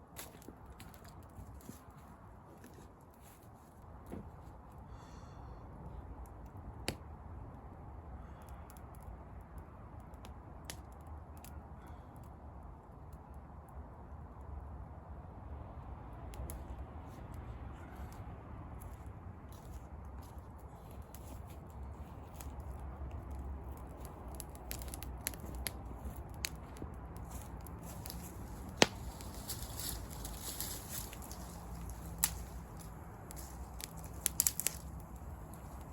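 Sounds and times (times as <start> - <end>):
wood fire crackling and popping: 8.4 - 13.4, 18.8 - 35.9
sharp fire pops: 27.2 - 35.8.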